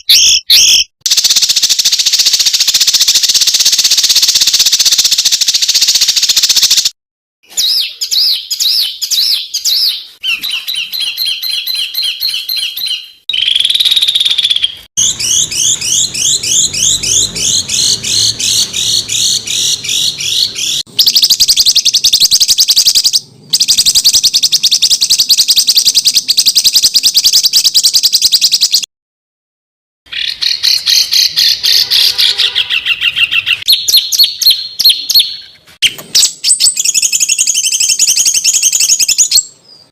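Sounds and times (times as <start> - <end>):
songbirds chattering rapidly: 7.6 - 28.9, 30.1 - 39.9.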